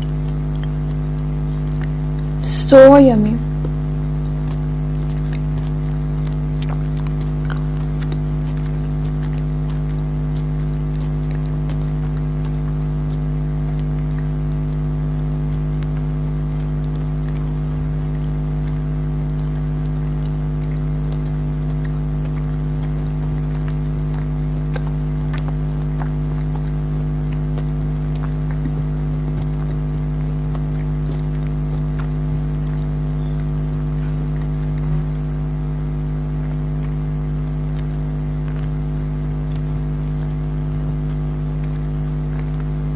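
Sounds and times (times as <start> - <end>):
jelly candies being chewed: 0.0 - 42.9
loud low hum: 2.4 - 3.6.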